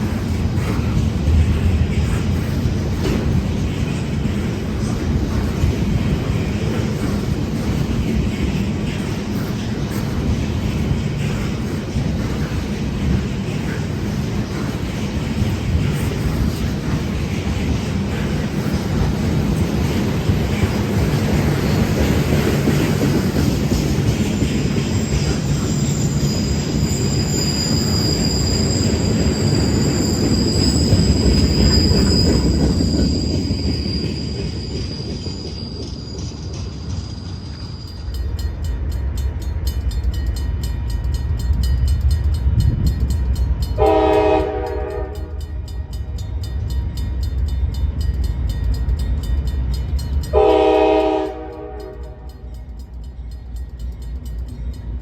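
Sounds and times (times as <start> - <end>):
locomotive rumble: 0.0 - 55.0
train rumbling by: 0.0 - 55.0
high wheel squeal: 24.2 - 38.1
locomotive air horn: 43.8 - 45.4, 50.4 - 52.3.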